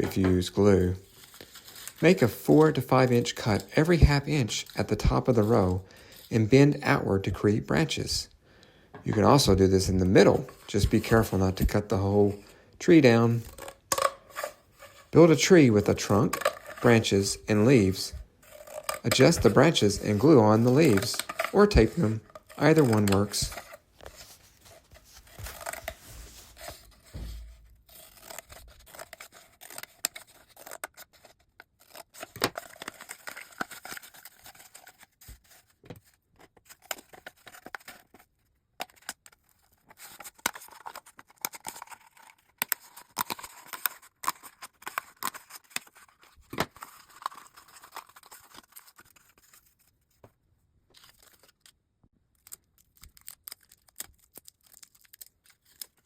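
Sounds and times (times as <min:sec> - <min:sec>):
paper rustling and tearing: 0:00.0 - 0:06.3, 0:14.3 - 0:50.2, 0:52.4 - 0:56.0
scissors snipping paper: 0:27.9 - 0:35.0.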